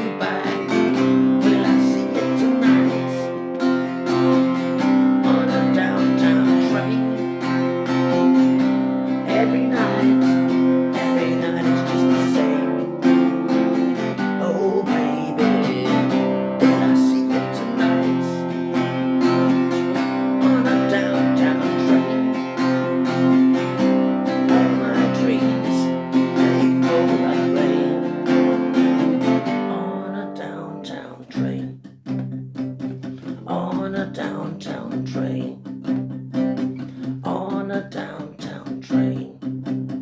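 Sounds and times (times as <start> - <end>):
acoustic guitar strumming: 0.0 - 40.0.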